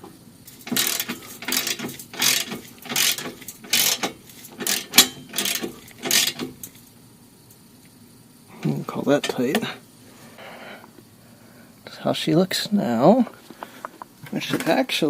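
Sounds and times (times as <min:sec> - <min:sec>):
ratchet wrench clicking: 0:00.5 - 0:06.9.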